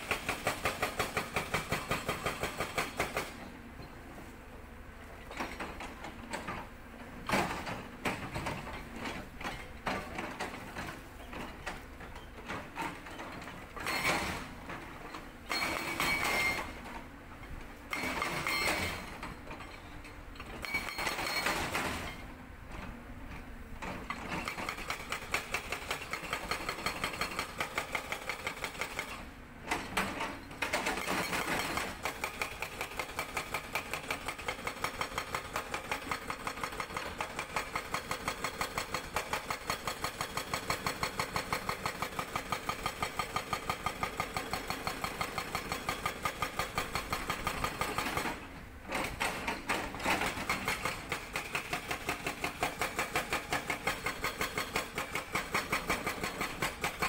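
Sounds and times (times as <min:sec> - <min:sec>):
hydraulic breaker hammering rock: 0:00.0 - 0:03.5, 0:05.2 - 0:16.9, 0:17.9 - 0:22.2, 0:23.8 - 0:57.0
excavator engine and hydraulics: 0:00.0 - 0:57.0.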